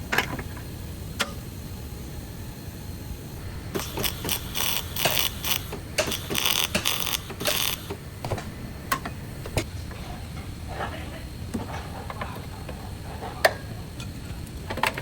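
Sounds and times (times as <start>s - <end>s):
scraping bursts: 3.4s - 8.1s
sharp clicks and knocks: 3.7s - 9.7s.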